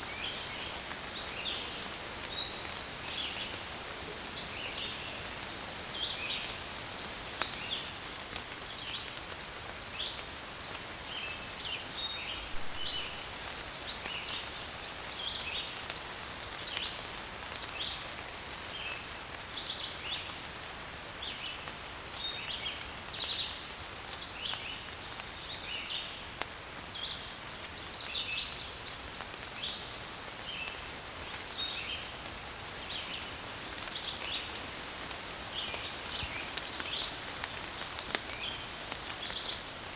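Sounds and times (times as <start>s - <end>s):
steady soft hiss: 0.0s - 20.3s.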